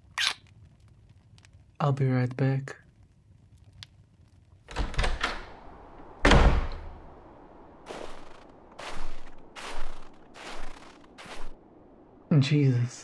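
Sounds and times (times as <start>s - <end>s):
door slamming: 4.7s - 7.1s.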